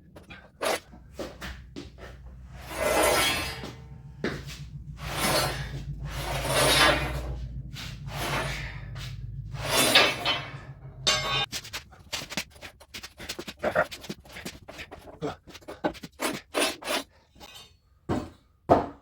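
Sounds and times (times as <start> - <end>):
steady low hum: 0.0 - 15.8
steel tubing scraping on jig: 0.2 - 0.9, 2.5 - 11.7, 12.8 - 17.8.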